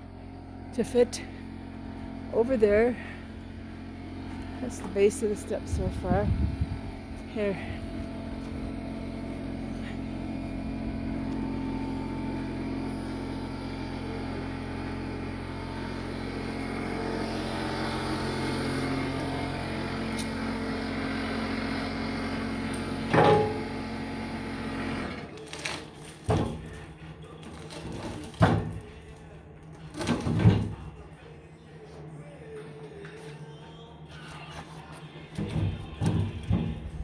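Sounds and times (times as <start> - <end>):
motor running steadily: 0.0 - 25.3.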